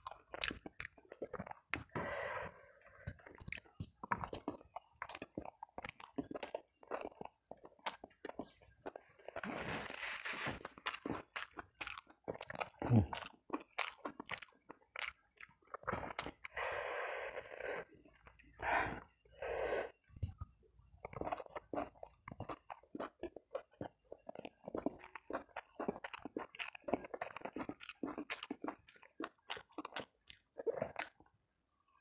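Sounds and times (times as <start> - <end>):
close chewing with wet smacking: 0.0 - 9.8, 10.4 - 16.6, 17.8 - 19.2, 20.0 - 32.0
breathy mouth noises: 0.4 - 11.5, 12.3 - 13.4, 15.0 - 28.8
paper tissue rustling: 9.4 - 10.6.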